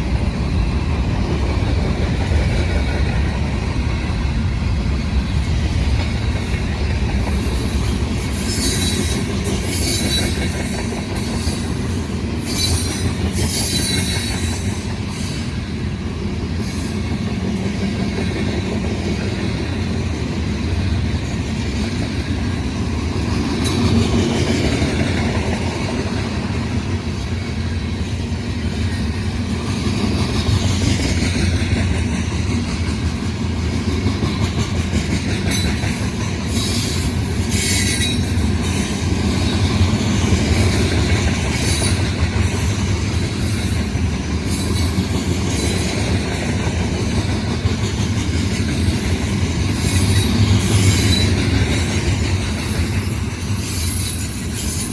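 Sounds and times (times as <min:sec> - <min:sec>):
train wheels clacking on rails: 0:00.0 - 0:54.9
high-pitched wheel squeals: 0:07.4 - 0:11.7, 0:12.4 - 0:15.5, 0:36.5 - 0:39.7, 0:52.6 - 0:54.9.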